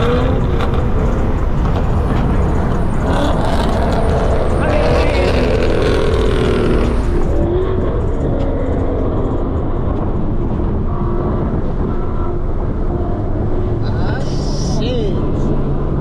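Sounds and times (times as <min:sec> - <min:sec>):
car engine running: 0:00.0 - 0:08.3.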